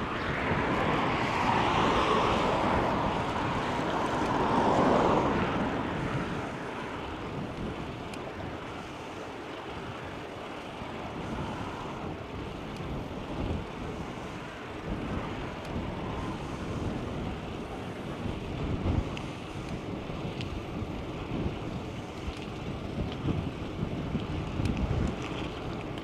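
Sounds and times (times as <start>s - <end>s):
wind buffeting microphone: 0.0s - 26.0s
faint ticks: 7.4s - 9.7s, 12.6s - 13.0s, 15.5s - 15.8s, 18.9s - 20.8s, 21.8s - 26.0s.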